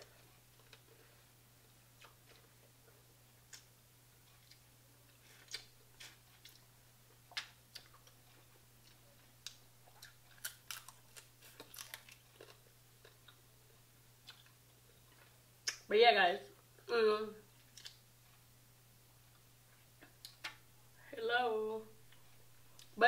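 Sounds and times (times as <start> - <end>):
chewing with clicks and crunches: 0.0 - 15.9, 17.6 - 18.4, 22.0 - 23.0.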